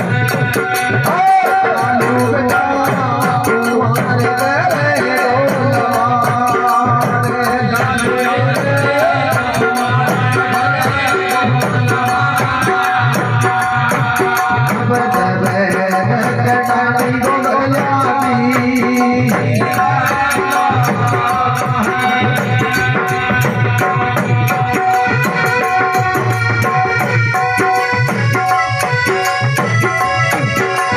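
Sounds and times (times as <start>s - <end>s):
hand drum beat: 0.0s - 30.9s.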